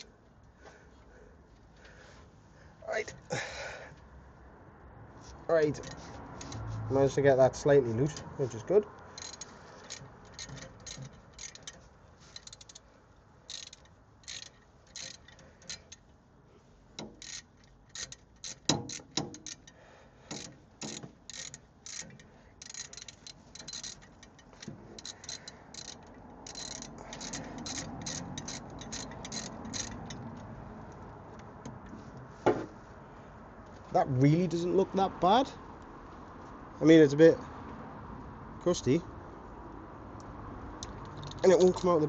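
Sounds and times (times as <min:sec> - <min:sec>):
ratchet wrench clicking: 0:05.8 - 0:06.6, 0:09.2 - 0:12.9, 0:13.5 - 0:16.1, 0:17.0 - 0:30.4, 0:40.8 - 0:42.0
metal knocks: 0:17.9 - 0:19.7.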